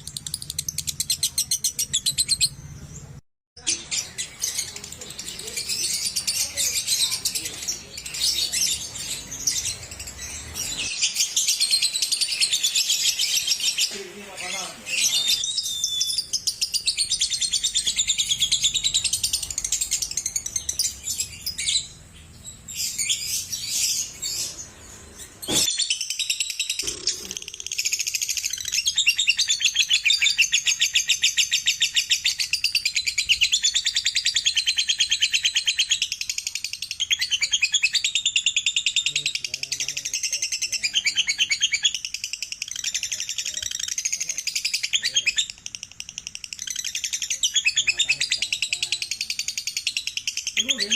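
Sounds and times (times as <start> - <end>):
lovebird trilling: 22.8 - 36.2.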